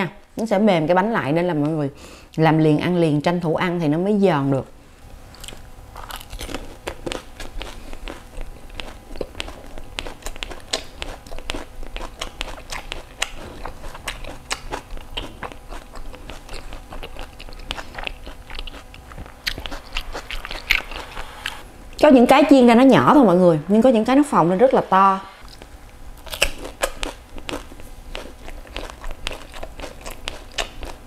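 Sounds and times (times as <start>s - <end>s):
crunching crisp shells: 5.3s - 21.1s, 25.5s - 31.0s.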